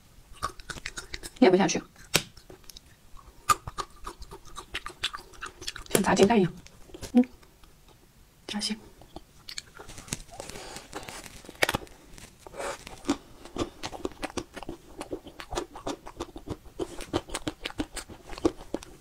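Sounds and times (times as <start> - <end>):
crunchy chewing: 0.3 - 8.0, 9.0 - 19.0
mouth clicks: 0.4 - 1.4, 2.0 - 8.0.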